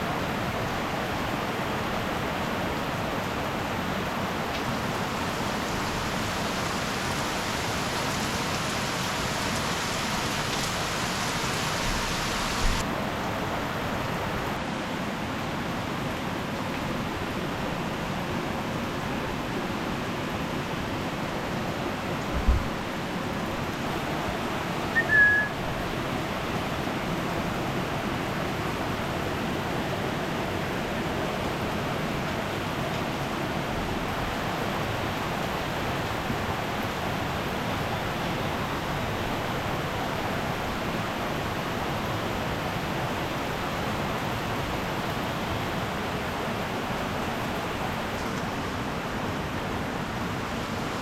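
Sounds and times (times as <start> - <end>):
heavy rain: 0.0 - 51.0
swollen stream rushing: 0.0 - 51.0
short high whistle: 24.9 - 25.6.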